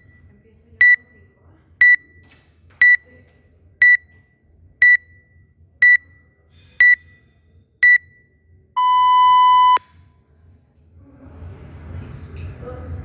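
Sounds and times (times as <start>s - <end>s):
short high beeps: 1.8s - 2.0s, 3.8s - 4.0s, 4.8s - 5.0s, 5.8s - 6.0s, 7.8s - 8.1s, 8.8s - 9.8s
long lower-pitched beep: 3.8s - 4.0s, 4.8s - 5.1s, 5.8s - 6.0s, 6.8s - 7.0s, 7.8s - 8.1s, 8.8s - 9.8s.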